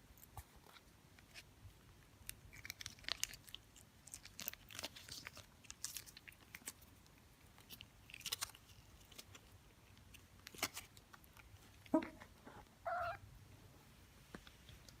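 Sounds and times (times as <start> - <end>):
cat chewing and licking: 0.1 - 13.0.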